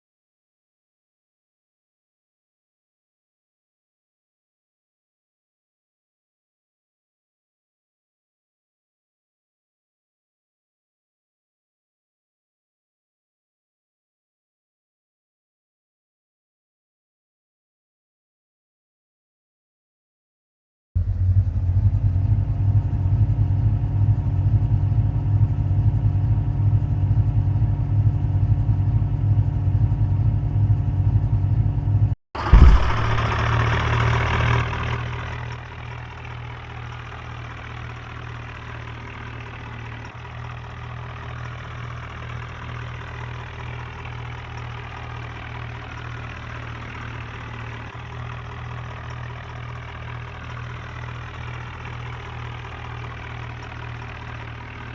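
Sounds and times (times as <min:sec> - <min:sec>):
tractor engine idling: 0:32.4 - 0:54.9.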